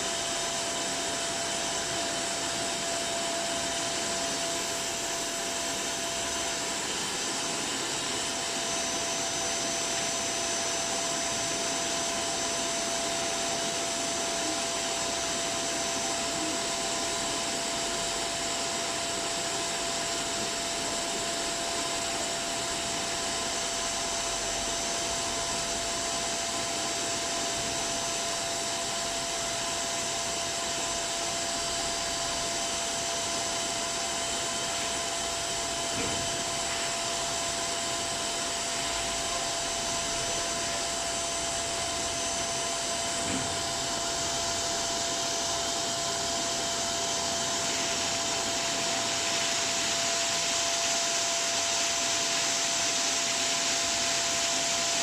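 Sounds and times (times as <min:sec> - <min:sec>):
car wash machinery hissing: 0:00.0 - 0:55.0
steady machine whine: 0:00.0 - 0:55.0.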